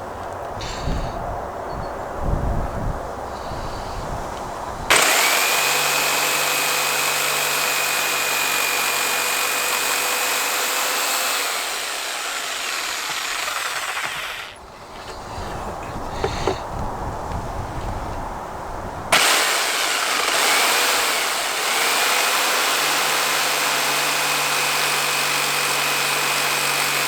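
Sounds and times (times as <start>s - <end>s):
power tool whining on wood: 4.9s - 15.2s, 19.1s - 27.0s.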